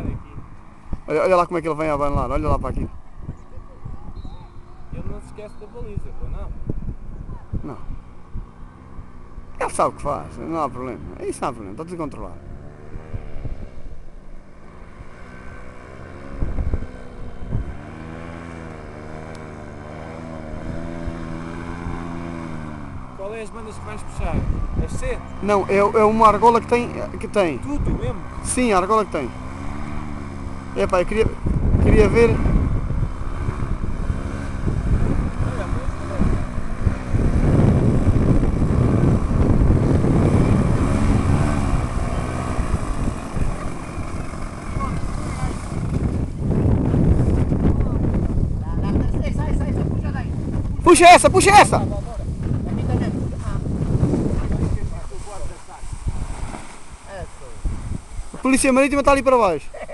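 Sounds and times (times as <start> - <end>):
paramotor engine droning: 0.0 - 59.9
wind buffeting microphone: 0.0 - 59.9.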